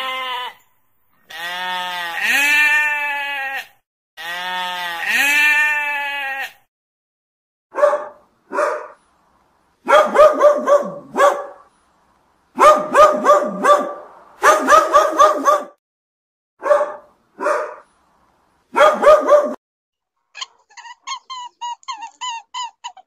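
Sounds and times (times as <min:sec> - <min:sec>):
dog barking high-pitched: 0:07.7 - 0:09.0, 0:09.8 - 0:11.7, 0:12.6 - 0:15.8, 0:16.6 - 0:17.9, 0:18.7 - 0:19.6.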